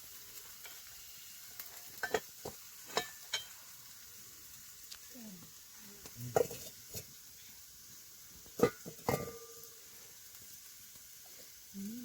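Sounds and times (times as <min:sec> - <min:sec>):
metal utensil knocking on pot: 0:08.6 - 0:09.5.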